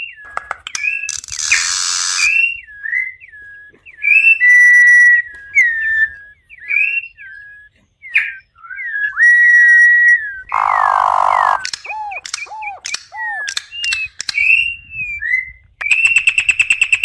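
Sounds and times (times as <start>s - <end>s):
bird singing whistled notes: 0.0s - 17.0s
harsh raspy bird note: 10.4s - 14.0s.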